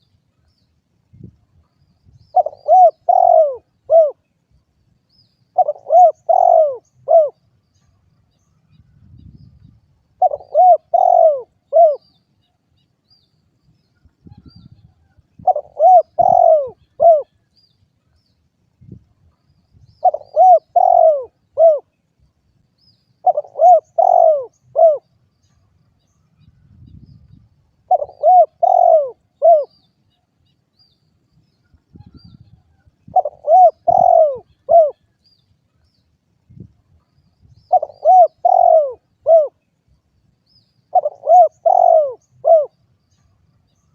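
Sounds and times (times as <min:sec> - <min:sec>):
dove cooing: 0:02.3 - 0:04.3, 0:05.5 - 0:07.4, 0:10.2 - 0:12.1, 0:15.4 - 0:17.4, 0:20.0 - 0:22.0, 0:23.2 - 0:25.1, 0:27.8 - 0:29.8, 0:32.0 - 0:35.1, 0:37.7 - 0:39.6, 0:40.9 - 0:42.8.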